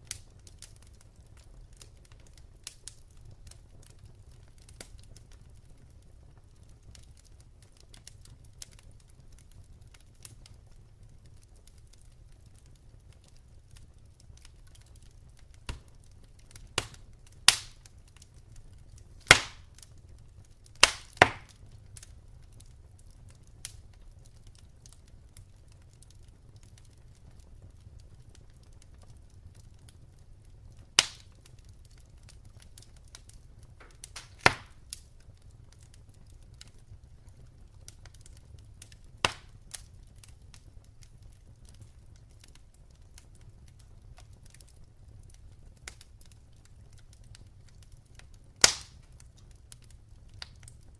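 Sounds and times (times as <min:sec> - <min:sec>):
wood fire crackling: 0:00.0 - 0:50.9
loud sharp pops: 0:16.8 - 0:17.8, 0:19.2 - 0:19.7, 0:20.8 - 0:21.5, 0:31.0 - 0:31.2, 0:33.8 - 0:34.8, 0:39.2 - 0:39.5, 0:48.6 - 0:49.0.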